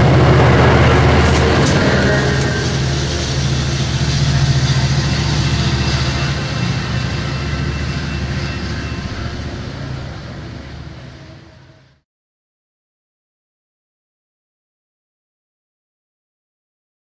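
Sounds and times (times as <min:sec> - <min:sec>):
diesel locomotive engine humming: 0:00.0 - 0:12.0.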